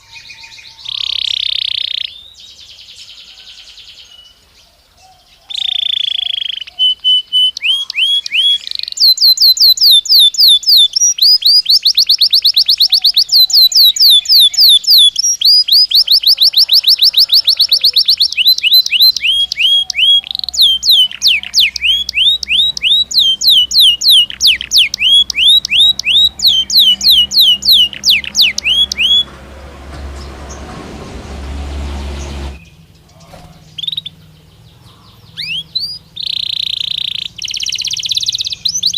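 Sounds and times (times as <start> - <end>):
canary singing trills: 0.0 - 30.7, 31.4 - 38.9
soft rushing noise: 26.5 - 32.7.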